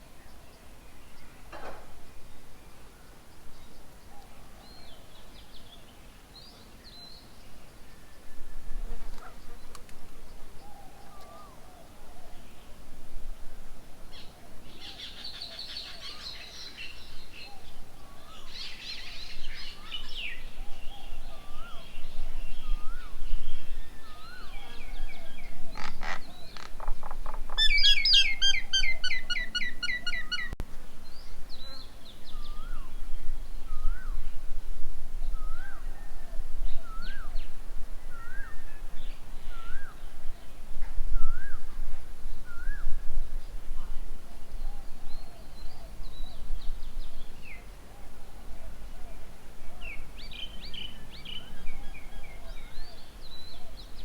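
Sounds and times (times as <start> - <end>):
birds chattering: 24.2 - 30.6.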